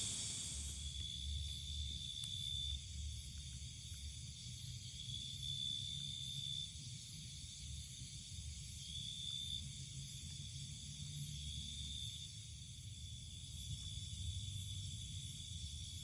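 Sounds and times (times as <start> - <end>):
crickets buzzing: 0.0 - 1.9.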